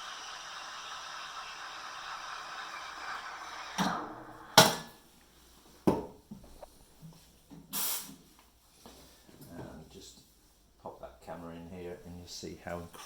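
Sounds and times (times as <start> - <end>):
steam wand hissing: 0.0 - 4.7.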